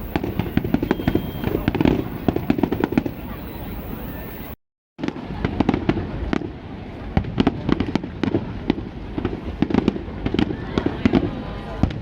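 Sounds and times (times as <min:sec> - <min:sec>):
fireworks crackling pops: 0:00.0 - 0:12.0
low rumble of firework bursts: 0:00.0 - 0:12.0.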